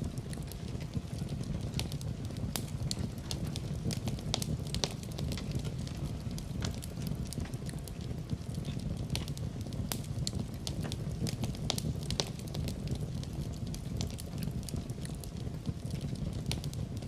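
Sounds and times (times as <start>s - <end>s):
low fire rumble: 0.0s - 17.0s
wood fire crackling and popping: 0.0s - 17.0s.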